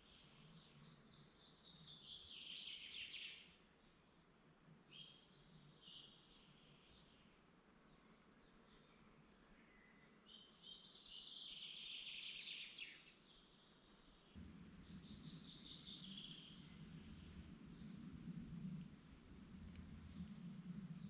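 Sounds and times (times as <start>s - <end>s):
songbirds singing: 0.0s - 21.0s
faint low hum: 13.5s - 21.0s.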